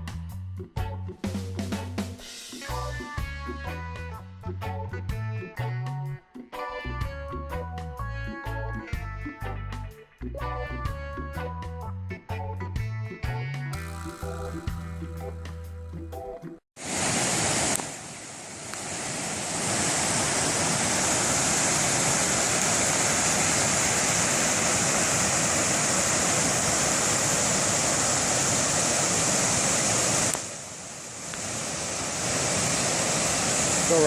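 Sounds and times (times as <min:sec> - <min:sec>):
music: 0:00.0 - 0:16.6
waterfall rushing: 0:16.8 - 0:34.0.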